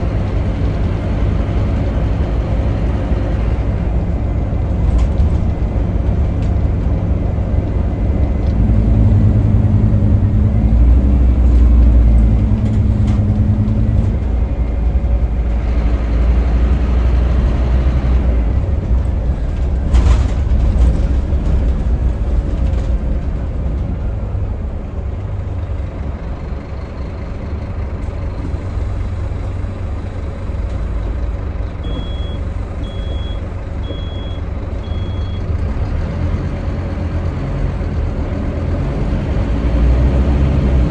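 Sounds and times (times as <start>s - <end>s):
bus engine pulling hard: 0.0s - 40.9s
short high beeps: 31.9s - 35.4s.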